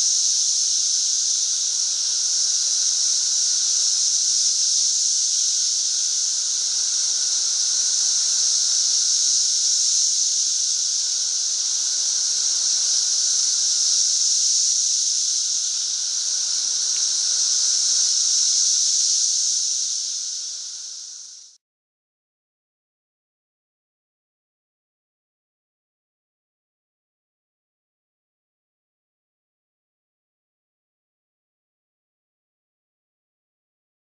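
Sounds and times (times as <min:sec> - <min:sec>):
cicadas droning: 0:00.0 - 0:21.6.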